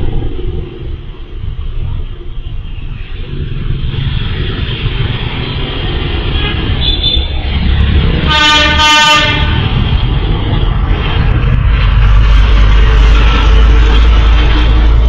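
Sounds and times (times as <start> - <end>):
low rumble: 0.0 - 15.0
vehicle horn: 6.3 - 7.4, 8.2 - 9.7.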